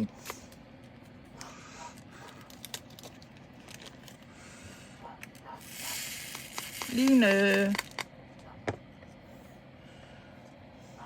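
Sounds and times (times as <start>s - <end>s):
plastic bags rustling: 2.4s - 4.3s
clicks of plastic bags: 6.3s - 8.1s.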